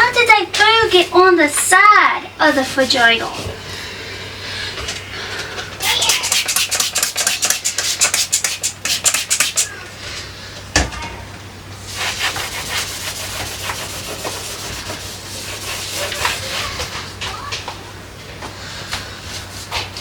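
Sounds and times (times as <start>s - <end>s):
hand scrubbing a refrigerator: 0.0s - 3.6s, 5.8s - 9.7s, 11.8s - 17.1s.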